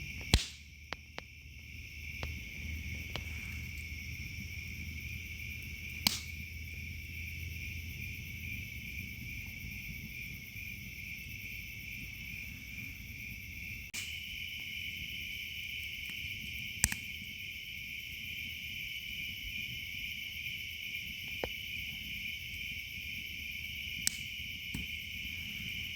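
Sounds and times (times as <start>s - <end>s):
crickets trilling: 0.0s - 25.9s
higher-pitched insect chorus: 0.0s - 25.9s
sharp clicks: 0.2s - 1.3s, 6.0s - 6.5s, 16.8s - 17.1s, 24.0s - 24.9s.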